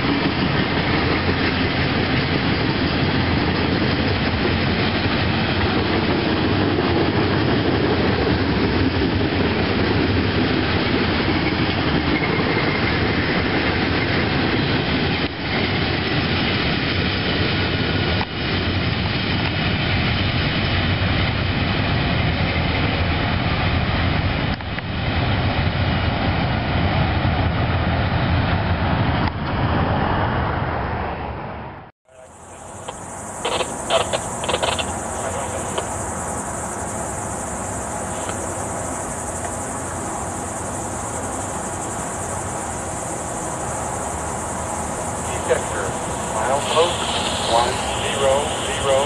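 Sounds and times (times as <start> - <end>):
freight train rumbling past: 0.0 - 49.0
high-pitched insect buzz: 32.2 - 48.6.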